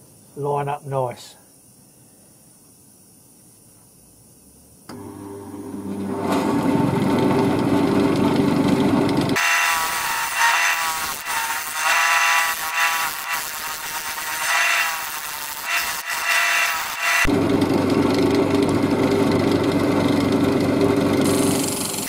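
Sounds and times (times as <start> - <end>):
wood lathe motor hum: 4.9 - 22.0
turning tool cutting wood: 5.8 - 22.0.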